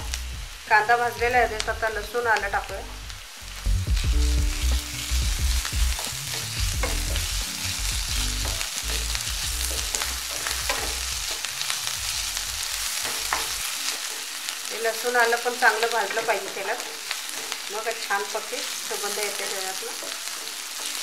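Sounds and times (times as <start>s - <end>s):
onion sizzling in hot oil: 0.0s - 21.0s
wooden spatula scraping a pan: 18.9s - 21.0s.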